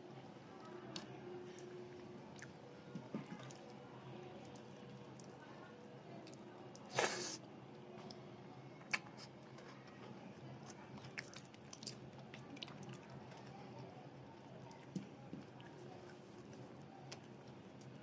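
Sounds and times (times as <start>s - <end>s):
chewing and biting food: 11.0s - 13.2s.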